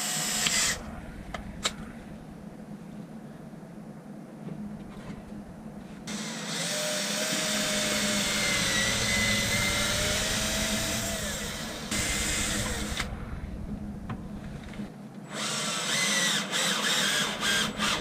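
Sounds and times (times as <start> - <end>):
power drill whine: 0.0 - 0.9, 6.1 - 13.1, 15.3 - 18.0.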